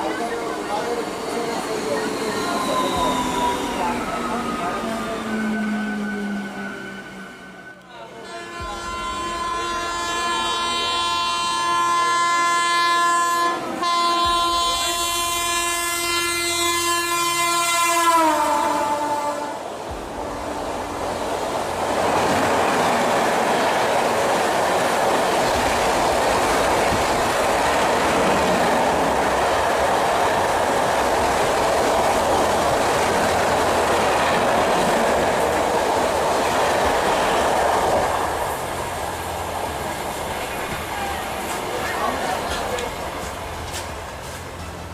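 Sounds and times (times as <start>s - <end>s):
train coaches rushing and clattering: 0.0s - 44.9s
locomotive horn: 5.6s - 21.0s.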